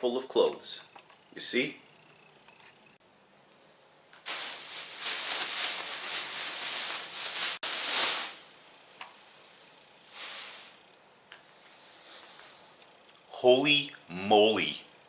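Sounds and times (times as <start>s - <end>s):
bag of clothes rustling: 4.2s - 10.8s.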